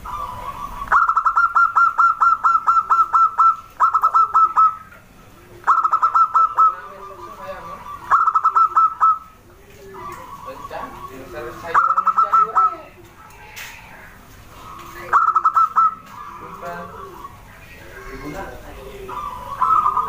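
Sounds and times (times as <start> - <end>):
dove calling in clipped notes: 0.0 - 20.0.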